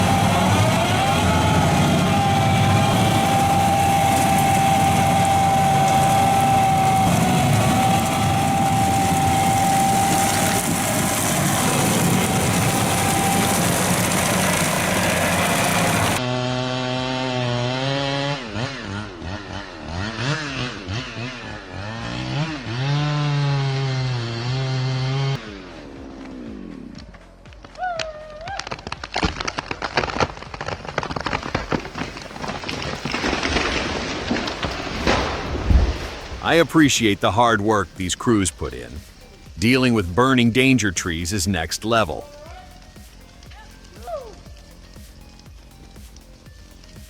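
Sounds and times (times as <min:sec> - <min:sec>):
chainsaw revving: 0:00.0 - 0:27.0
stump grinder roaring: 0:00.0 - 0:27.0, 0:28.6 - 0:40.4.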